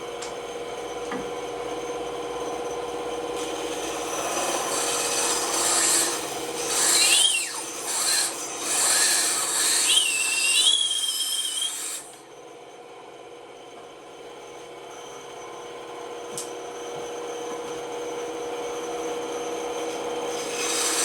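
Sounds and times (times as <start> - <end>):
bandsaw cutting wood: 3.4 - 12.2, 20.3 - 21.0
bandsaw squeal: 3.4 - 12.2, 20.3 - 21.0.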